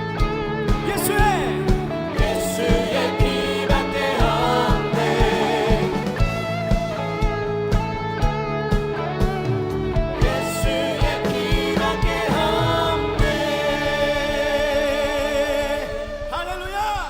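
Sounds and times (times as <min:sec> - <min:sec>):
worship band playing: 0:00.1 - 0:17.0
voices singing wordless lines: 0:00.8 - 0:06.7, 0:10.2 - 0:17.0
kick drum beat: 0:00.8 - 0:13.5.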